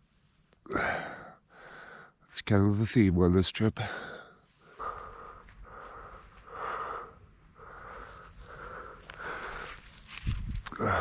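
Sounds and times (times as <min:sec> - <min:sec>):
rhythmic panting breaths: 0:03.8 - 0:10.1.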